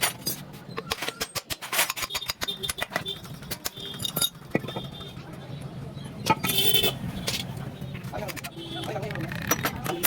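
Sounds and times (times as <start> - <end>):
metal tools clinking: 0.0 - 4.9.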